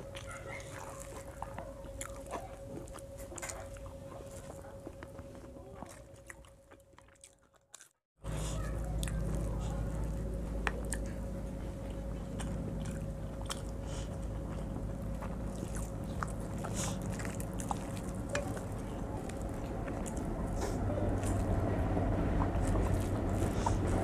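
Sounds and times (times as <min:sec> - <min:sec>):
steady low hum: 0:00.0 - 0:07.1, 0:08.2 - 0:24.0
chewing mouth smacks: 0:00.0 - 0:07.9, 0:08.6 - 0:11.2, 0:11.8 - 0:21.5
fingers mixing rice on a plate: 0:13.2 - 0:21.7.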